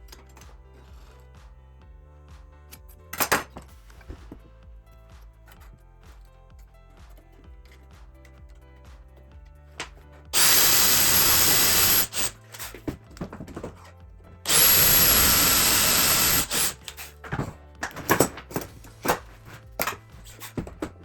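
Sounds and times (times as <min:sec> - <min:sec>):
power tool whining: 0:09.8 - 0:21.0.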